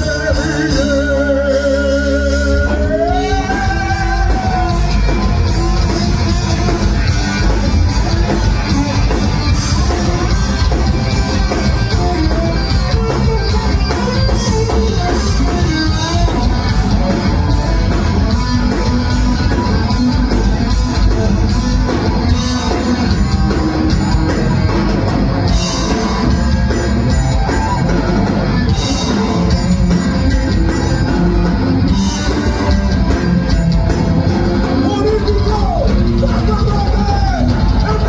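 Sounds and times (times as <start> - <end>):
person shouting singing: 0.0 - 5.2, 34.8 - 38.0
punk rock band playing live: 0.0 - 38.0.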